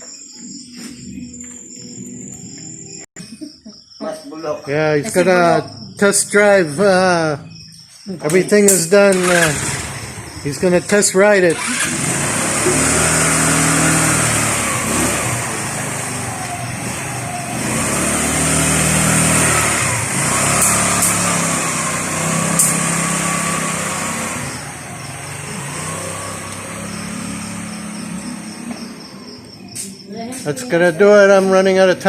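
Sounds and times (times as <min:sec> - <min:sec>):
scooter engine revving: 0:08.5 - 0:31.3.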